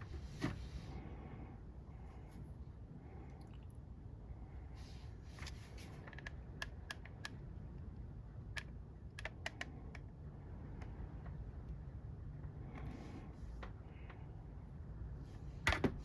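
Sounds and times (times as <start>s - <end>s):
low steady hum: 0.0s - 16.0s
small plastic clicks and taps: 6.0s - 7.4s, 8.5s - 10.1s.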